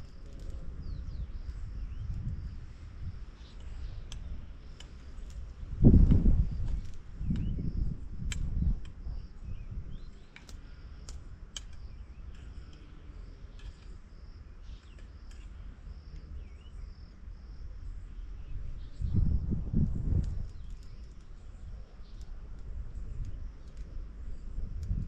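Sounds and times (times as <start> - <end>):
insects trilling: 0.0 - 25.0
sharp clicks: 8.2 - 9.0, 10.0 - 12.9.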